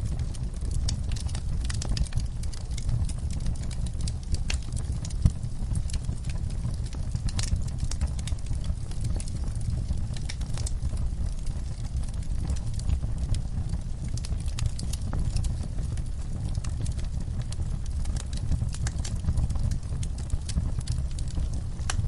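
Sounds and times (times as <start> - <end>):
fireplace flames rumbling: 0.0 - 22.0
wood fire crackling and popping: 0.0 - 22.0.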